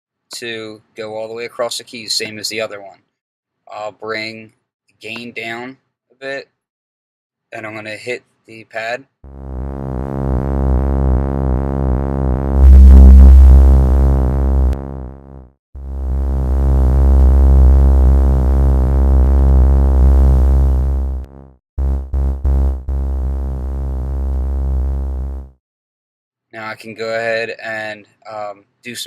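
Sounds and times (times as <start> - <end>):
short synth stabs: 9.3 - 25.5
buzzy synth bass note: 9.3 - 25.6.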